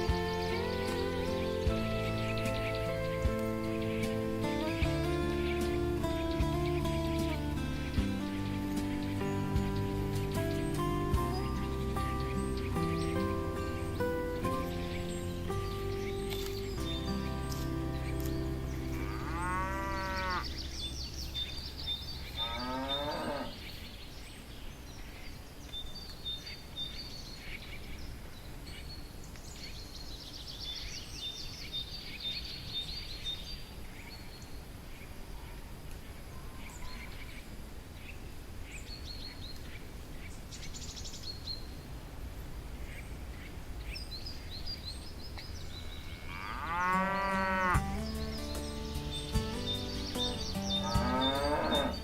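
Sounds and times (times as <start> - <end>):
low outdoor rumble: 0.0 - 23.5
birds chirping: 0.0 - 52.0
cattle mooing: 18.6 - 20.6, 22.4 - 23.5, 46.1 - 47.8, 50.8 - 52.0.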